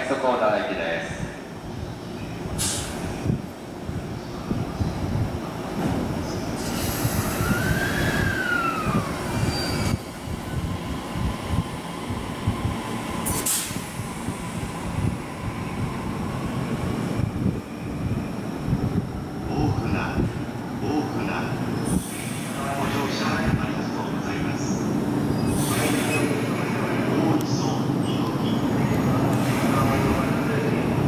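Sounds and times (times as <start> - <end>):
train wheel rumble: 1.0 - 31.0
brief hiss: 2.6 - 3.0, 13.3 - 13.9
high wheel squeal: 6.6 - 10.0.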